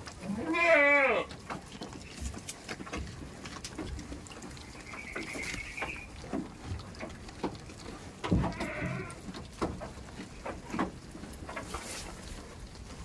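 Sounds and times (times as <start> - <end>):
goat bleating: 0.2 - 1.3, 8.3 - 9.3
small clicks and knocks: 1.2 - 13.0.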